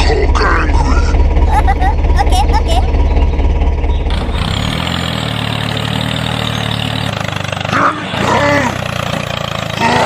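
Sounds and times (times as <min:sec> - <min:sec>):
tractor engine chugging: 0:00.0 - 0:10.0.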